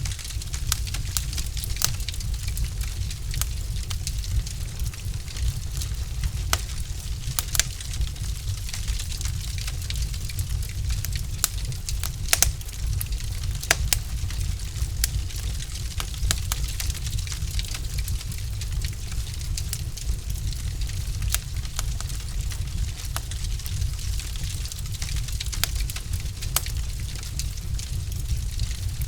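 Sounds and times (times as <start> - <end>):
fire crackling and popping: 0.0 - 29.0
low rumble of fire: 0.0 - 29.0.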